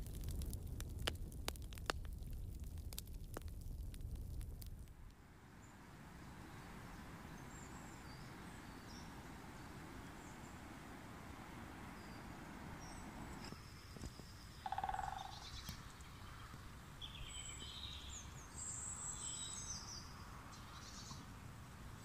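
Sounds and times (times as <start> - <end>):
birds chirping and trilling: 11.8 - 21.2
low rattling bird call: 14.5 - 18.0.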